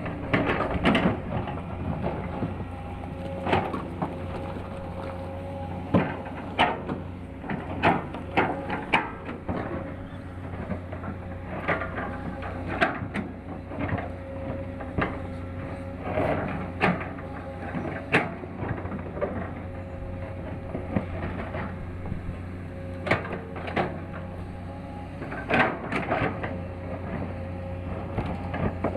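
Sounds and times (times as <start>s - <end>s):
excavator engine humming: 0.0s - 28.9s.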